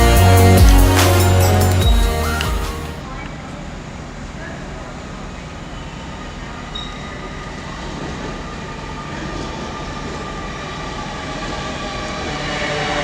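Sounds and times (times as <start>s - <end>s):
train whining tones: 7.4s - 13.0s.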